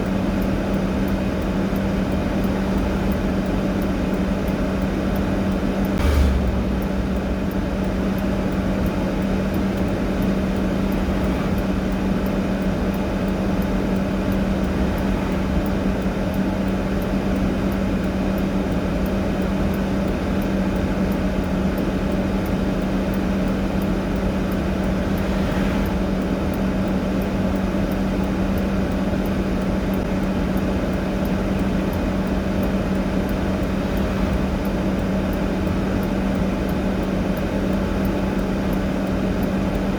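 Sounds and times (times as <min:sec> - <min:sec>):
mechanical hum: 0:00.0 - 0:39.9
low thump: 0:06.0 - 0:08.8.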